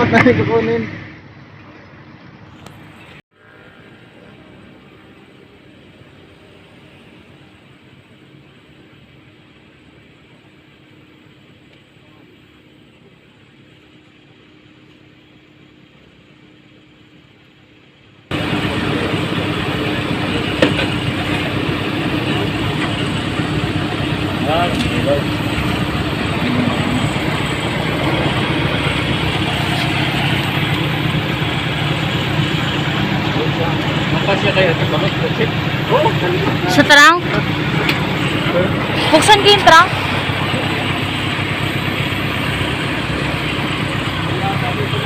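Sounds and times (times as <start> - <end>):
engine running low drone: 0.0 - 45.0
vehicle rumble and road noise: 0.0 - 45.0.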